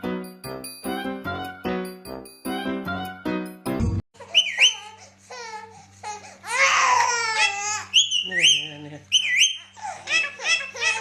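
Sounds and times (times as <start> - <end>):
parrot squeaky calls and babbling: 4.2 - 5.0, 7.3 - 9.9.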